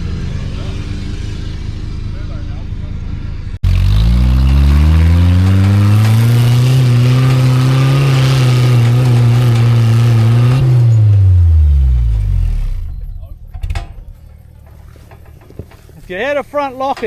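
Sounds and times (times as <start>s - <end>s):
engine revving hard: 3.6s - 13.2s.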